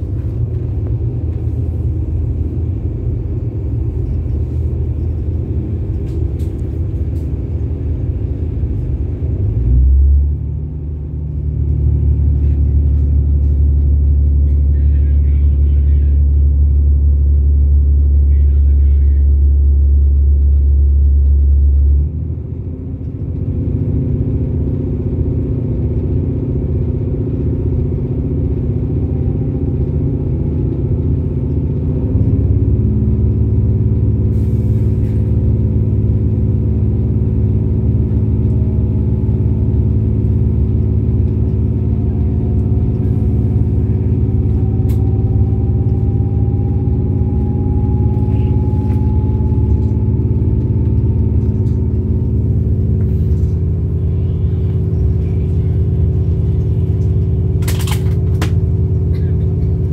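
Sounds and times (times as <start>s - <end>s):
train engine hum and rumble: 0.0s - 59.9s
faint rising tones: 42.4s - 52.7s.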